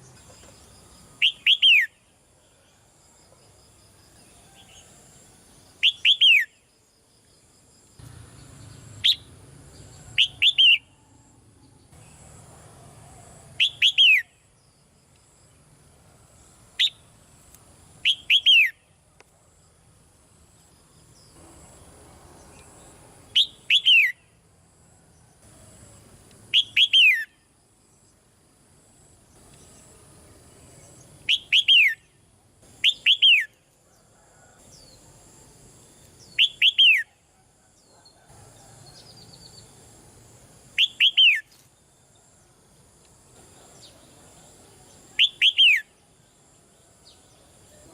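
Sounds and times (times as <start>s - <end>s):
bird chirping: 0.0s - 2.7s, 5.7s - 6.7s, 8.0s - 12.4s, 13.6s - 15.5s, 18.0s - 19.0s, 20.5s - 24.4s, 26.5s - 27.4s, 29.3s - 33.6s, 36.0s - 38.2s, 40.8s - 42.3s, 43.4s - 47.9s.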